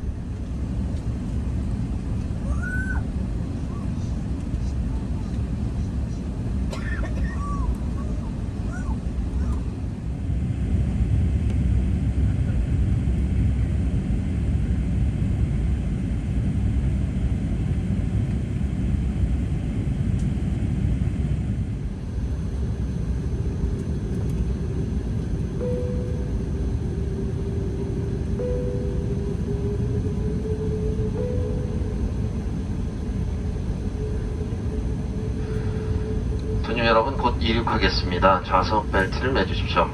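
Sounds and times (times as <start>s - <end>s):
aircraft cabin engine rumble: 0.0s - 39.9s
steady mid-pitched tone: 22.2s - 39.9s.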